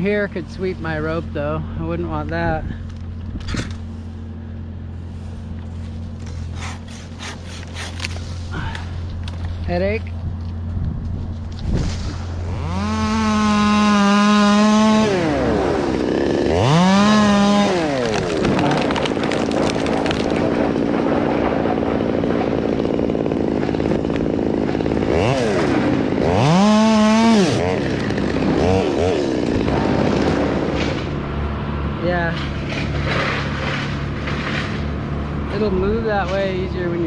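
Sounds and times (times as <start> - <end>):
chainsaw revving: 5.6 - 9.7, 12.1 - 31.7.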